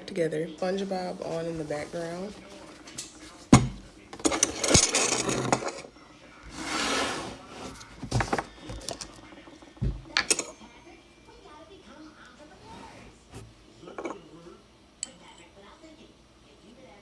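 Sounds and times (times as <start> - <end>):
rustling and scraping: 0.6 - 10.7, 12.5 - 14.2
clicks and thumps: 3.0 - 5.8, 8.0 - 10.6.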